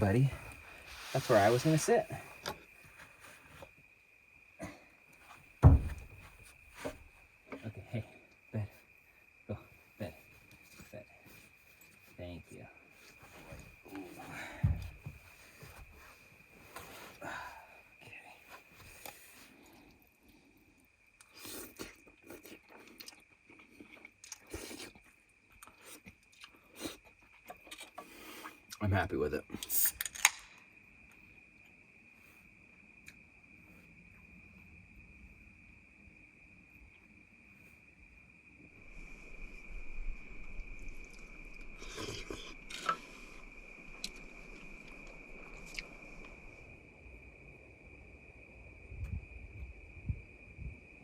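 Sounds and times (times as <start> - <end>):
crickets trilling: 0.0 - 51.0
chewing and eating: 21.2 - 28.8, 41.0 - 46.4.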